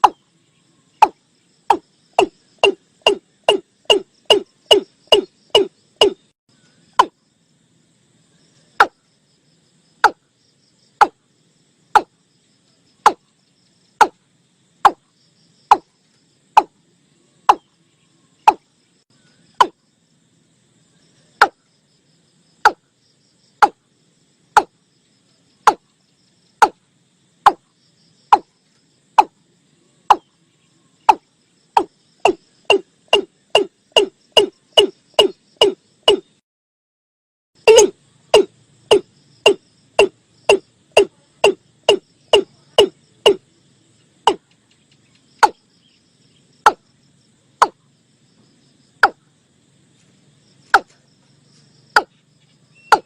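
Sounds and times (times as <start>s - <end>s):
watercock calling: 1.0s - 6.2s.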